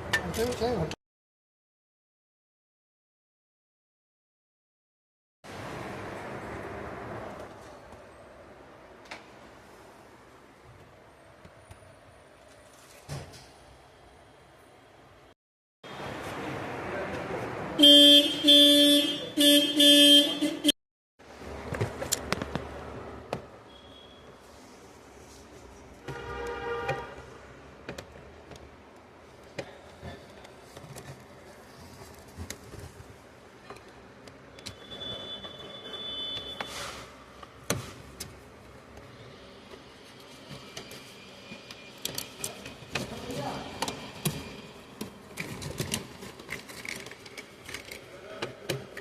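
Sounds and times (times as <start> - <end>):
car horn blasts: 17.8 - 20.8, 26.0 - 27.3, 34.7 - 36.8.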